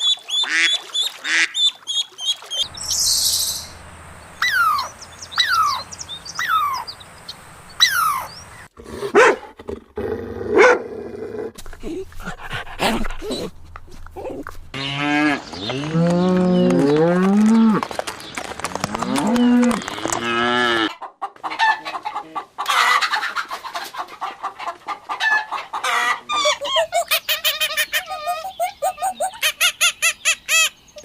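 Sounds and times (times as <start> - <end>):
cattle mooing: 18.8 - 20.9
chickens clucking: 20.7 - 30.6.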